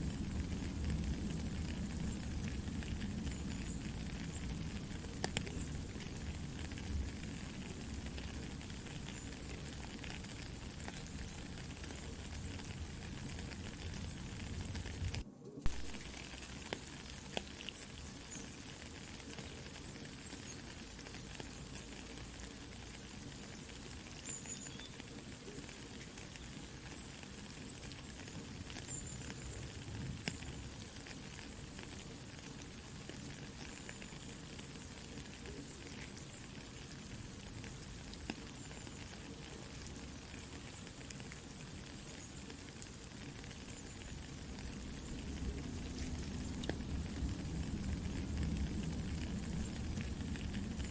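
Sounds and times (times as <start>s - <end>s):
campfire crackling: 0.0s - 50.9s
soft steady rain: 0.0s - 50.9s.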